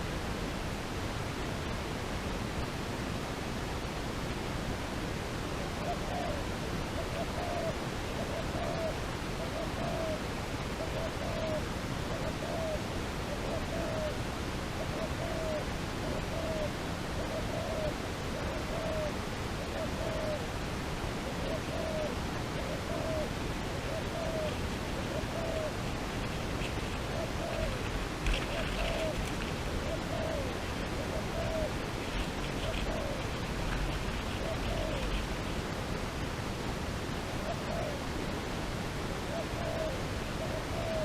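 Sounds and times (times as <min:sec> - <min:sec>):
steady background hiss: 0:00.0 - 0:41.0
bird hooting: 0:05.8 - 0:06.4, 0:07.0 - 0:10.2, 0:10.8 - 0:11.6, 0:12.2 - 0:14.2, 0:14.8 - 0:20.4, 0:21.3 - 0:35.6, 0:37.4 - 0:38.0, 0:39.3 - 0:41.0.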